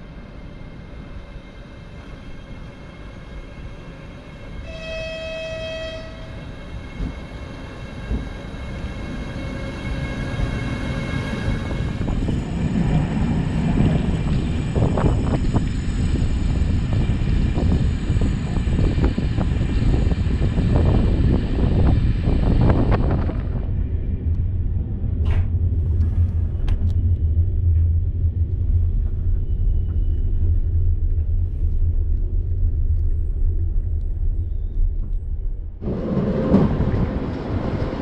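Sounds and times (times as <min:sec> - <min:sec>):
train wheels rumbling on rails: 0:00.0 - 0:38.0
train horn: 0:04.6 - 0:06.8.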